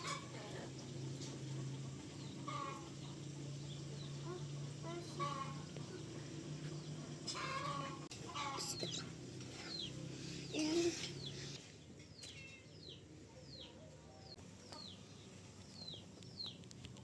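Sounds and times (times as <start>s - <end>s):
poultry clucking: 0.0s - 10.0s
steady low hum: 0.0s - 11.6s
chicks peeping: 6.7s - 16.6s.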